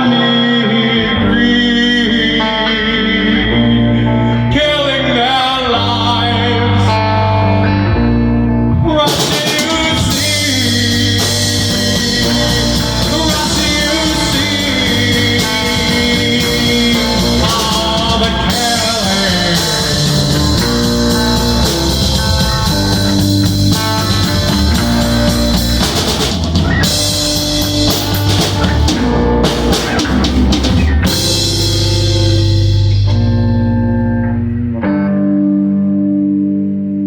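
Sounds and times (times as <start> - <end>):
rock band playing loudly: 0.0 - 37.0
drum kit beating: 8.8 - 34.0.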